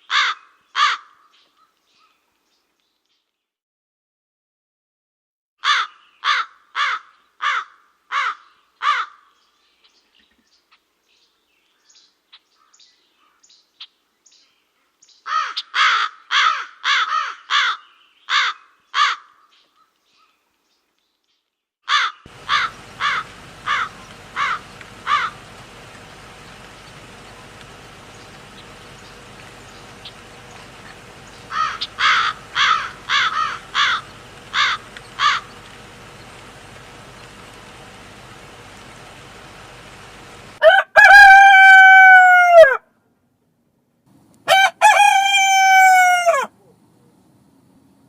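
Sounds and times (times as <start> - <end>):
bird harsh calls: 0.0 - 2.2, 5.6 - 9.6, 15.1 - 20.4, 21.9 - 40.6.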